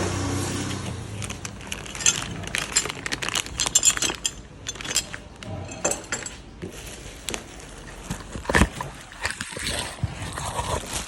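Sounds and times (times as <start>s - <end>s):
light metallic clinks and taps: 3.6s - 6.4s.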